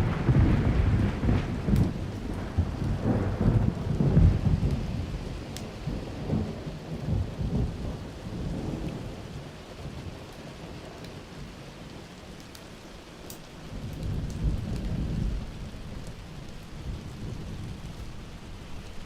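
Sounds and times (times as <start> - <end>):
wood fire crackling: 0.0 - 6.4, 11.0 - 19.0
rolling thunder: 0.0 - 10.0, 13.6 - 19.0
steady rain: 0.0 - 19.0.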